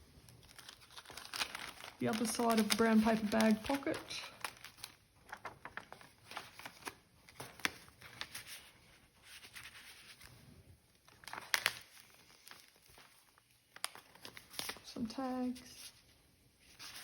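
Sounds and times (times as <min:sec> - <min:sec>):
paper pages rustling: 0:00.4 - 0:17.0
page flaps: 0:00.6 - 0:08.6.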